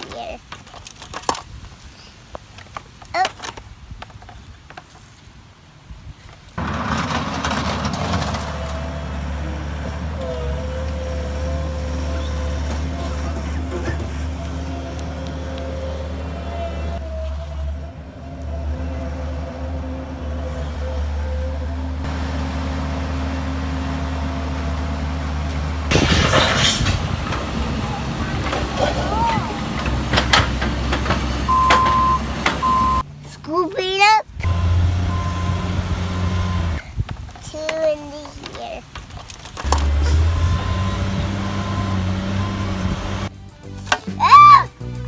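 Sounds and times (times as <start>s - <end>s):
loud rattling clatter: 6.6s - 10.1s, 24.8s - 32.6s
low engine-like hum: 6.6s - 33.1s, 34.5s - 36.9s.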